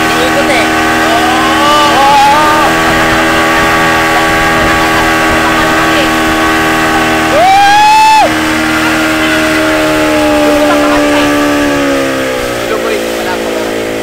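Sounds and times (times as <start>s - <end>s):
motorboat engine running: 0.0s - 14.0s
people shouting: 0.8s - 11.5s.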